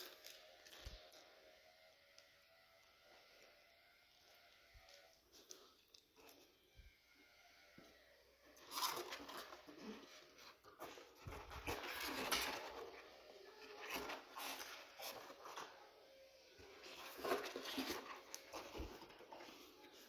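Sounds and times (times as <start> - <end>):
packaging rustling: 16.6 - 20.0.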